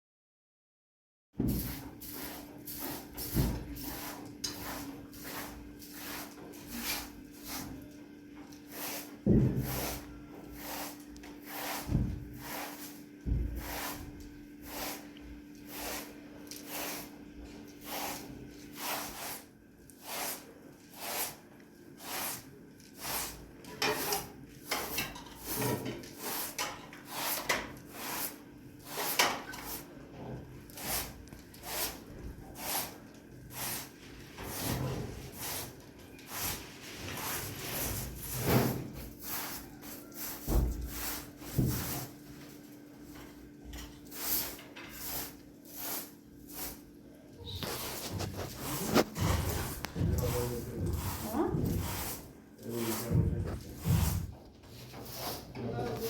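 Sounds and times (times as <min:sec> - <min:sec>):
rhythmic scraping strokes: 0:47.6 - 0:54.4.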